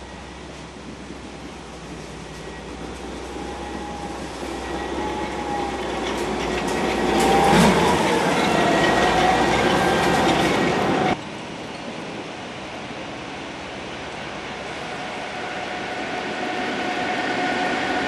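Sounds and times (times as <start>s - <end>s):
train running on rails: 0.0s - 18.0s
wheels clicking over rail joints: 0.4s - 12.0s
wheel squeal: 2.2s - 11.2s.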